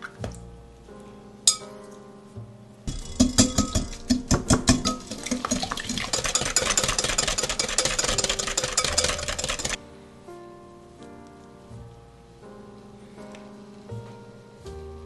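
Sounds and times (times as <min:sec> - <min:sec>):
mixer knocking: 0:02.9 - 0:09.8.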